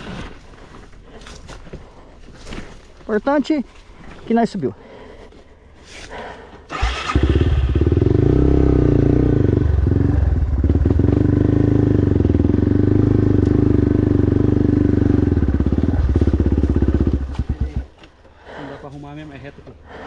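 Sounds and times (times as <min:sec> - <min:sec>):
dirt bike engine running: 0:06.7 - 0:18.0.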